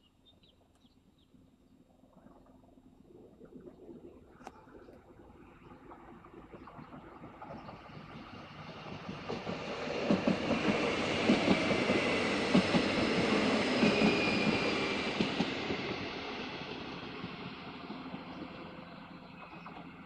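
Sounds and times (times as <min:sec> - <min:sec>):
electric train passing: 0:05.3 - 0:20.0.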